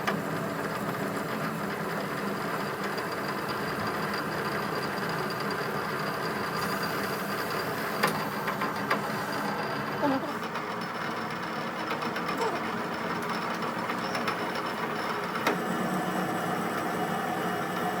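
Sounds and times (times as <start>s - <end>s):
machine motor running: 6.2s - 18.0s.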